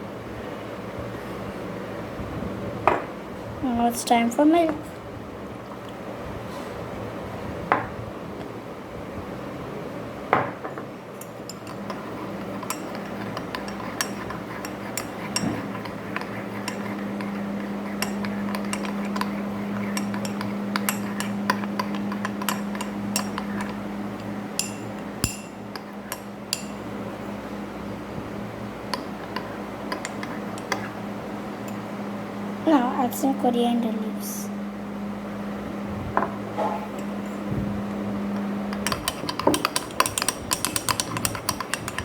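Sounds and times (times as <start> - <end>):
steady low hum: 10.9 - 42.0
metal utensil clinking on mug: 38.7 - 42.0.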